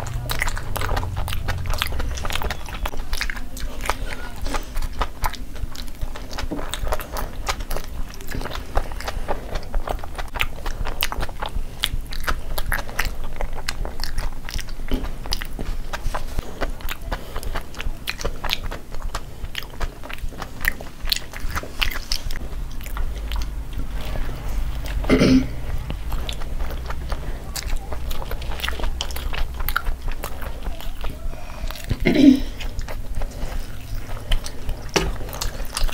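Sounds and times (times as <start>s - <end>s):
people chewing: 0.0s - 35.9s
wet mouth clicks and lip smacks: 25.7s - 32.0s.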